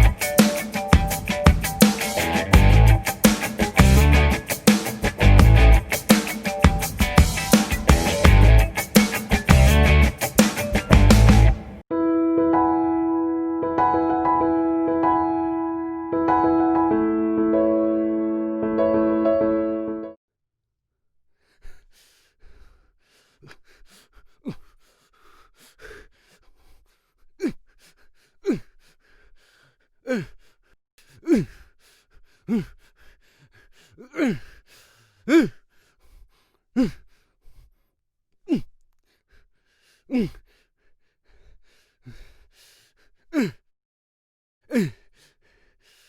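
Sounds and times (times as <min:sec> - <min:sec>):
man grunting with exertion: 0:28.4 - 0:28.7, 0:30.1 - 0:30.4, 0:31.2 - 0:31.6, 0:34.0 - 0:34.5, 0:35.3 - 0:35.6, 0:36.8 - 0:37.0, 0:38.5 - 0:38.8, 0:40.1 - 0:40.4, 0:43.3 - 0:43.6, 0:44.7 - 0:45.0.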